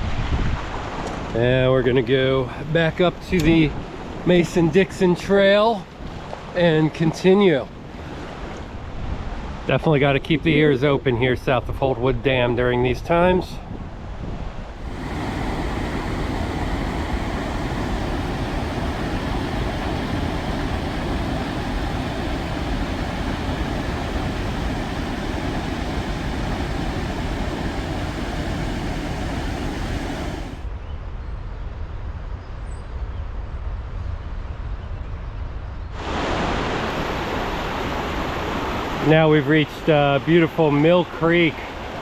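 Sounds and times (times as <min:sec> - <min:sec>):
river rushing roar: 0:14.8 - 0:30.7, 0:36.0 - 0:39.5.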